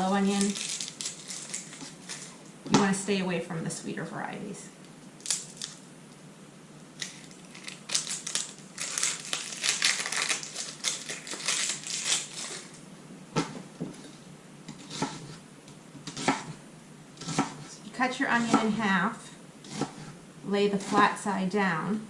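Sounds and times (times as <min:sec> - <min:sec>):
knife chopping onion on board: 0:16.1 - 0:16.6, 0:17.2 - 0:17.7, 0:18.3 - 0:18.8, 0:19.7 - 0:20.1.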